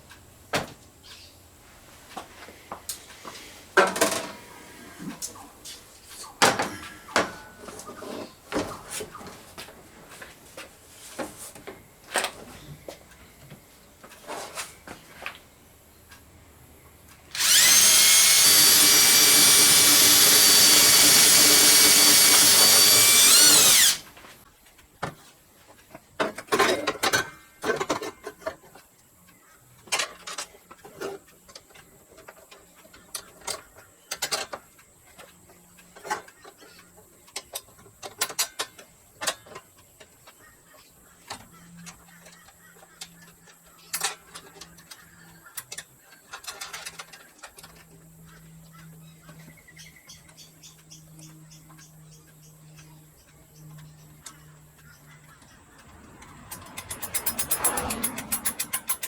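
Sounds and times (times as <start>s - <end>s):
electric drill running: 17.3s - 24.0s
tools clicking and knocking: 55.8s - 59.0s.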